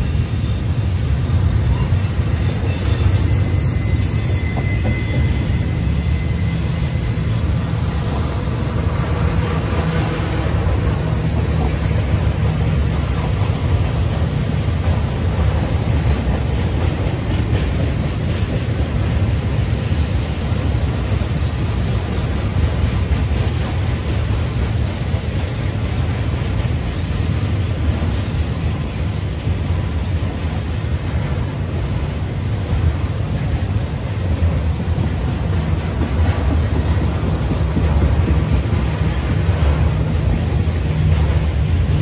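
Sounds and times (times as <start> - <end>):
wheel squeal: 0.0 - 16.0, 36.6 - 42.0
train wheels rumbling on rails: 0.0 - 42.0.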